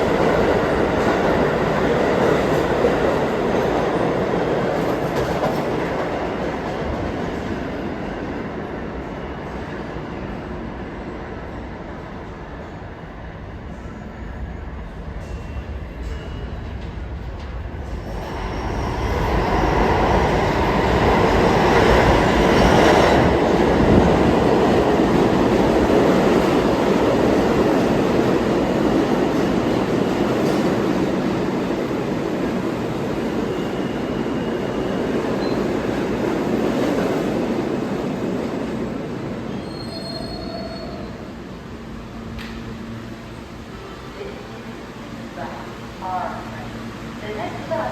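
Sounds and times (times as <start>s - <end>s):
subway train rumbling on rails: 0.0s - 47.9s
train wheel squeal: 33.4s - 35.8s, 39.5s - 41.3s.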